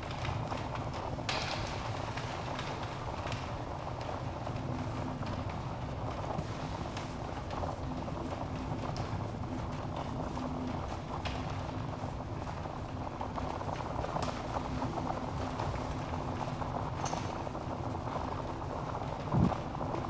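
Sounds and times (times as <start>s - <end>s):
burning logs crackling and popping: 0.0s - 20.0s
rush of fire flames: 18.4s - 20.0s.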